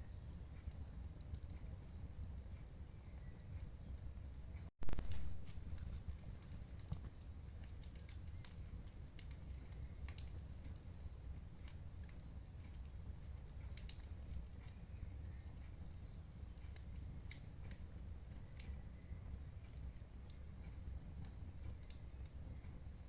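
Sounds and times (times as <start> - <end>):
fire low rumble: 0.0 - 23.0
wood fire crackling: 0.0 - 23.0.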